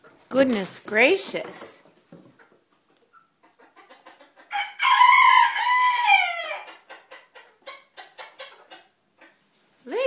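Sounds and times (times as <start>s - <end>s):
rooster crowing: 4.5s - 6.7s.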